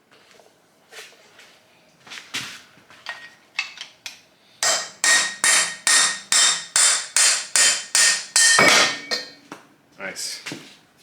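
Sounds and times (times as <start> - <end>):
hammer ringing on metal: 4.6 - 9.4.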